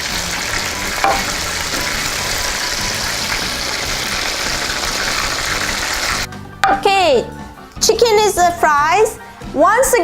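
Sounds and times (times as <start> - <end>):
chicken deep-frying in oil: 0.0 - 6.3.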